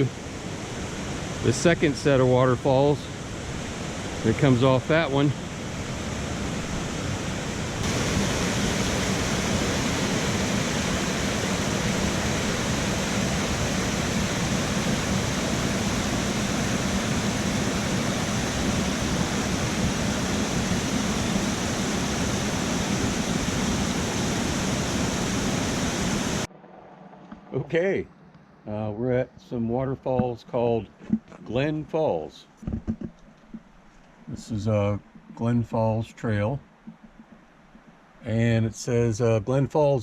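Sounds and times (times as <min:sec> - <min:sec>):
waterfall over rock: 0:07.4 - 0:26.5.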